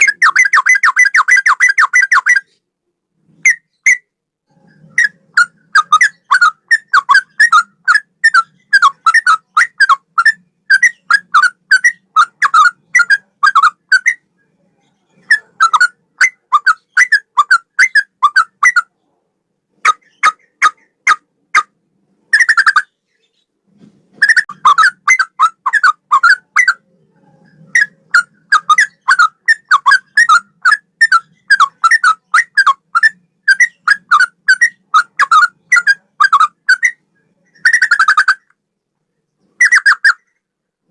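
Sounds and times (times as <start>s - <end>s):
bird singing whistled notes: 0.0s - 2.6s, 3.4s - 4.1s, 4.8s - 14.2s, 27.5s - 38.5s.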